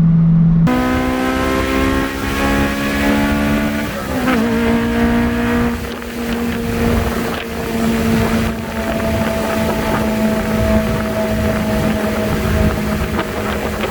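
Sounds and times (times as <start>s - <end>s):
wind and road noise: 0.0s - 13.9s
sports car engine revving: 0.7s - 13.9s.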